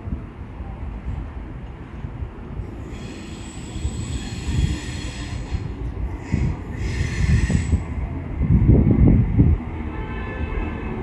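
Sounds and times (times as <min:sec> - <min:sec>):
train wheels rumbling: 0:00.0 - 0:11.0
high-pitched brake squeal: 0:02.6 - 0:07.9.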